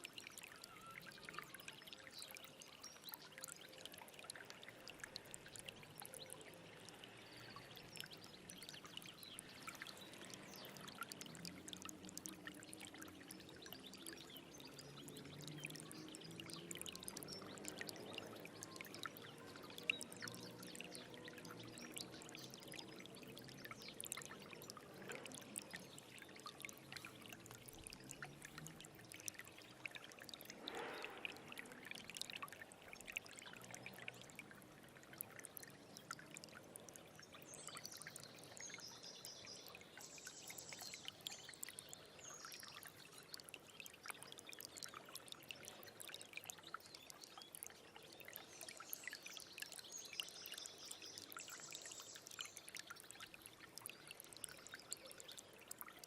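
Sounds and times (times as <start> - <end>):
stream trickling over stones: 0.0 - 56.0.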